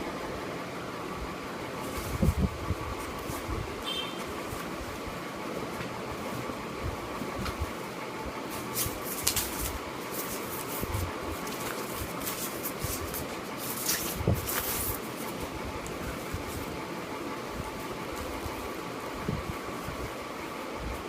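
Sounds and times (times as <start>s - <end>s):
steady room hum: 0.0s - 21.0s
packaging rustling: 8.6s - 16.6s.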